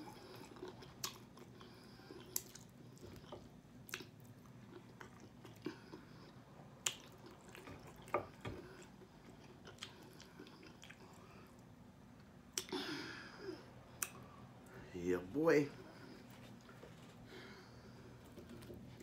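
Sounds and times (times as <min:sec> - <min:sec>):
chewing chicken wings: 0:00.0 - 0:11.6.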